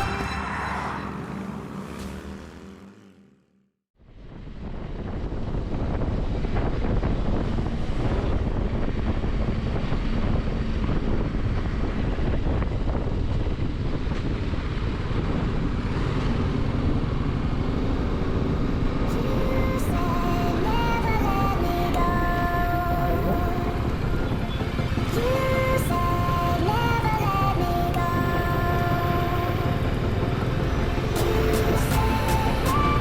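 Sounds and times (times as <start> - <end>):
music: 0.0 - 1.2, 19.1 - 33.0
motorcycle engine and road noise: 0.0 - 33.0
wind rushing over microphone: 4.0 - 33.0.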